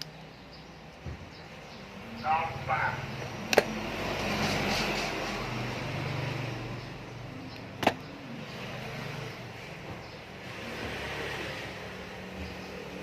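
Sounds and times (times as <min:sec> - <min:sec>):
sharp clicks: 0:03.5 - 0:03.8.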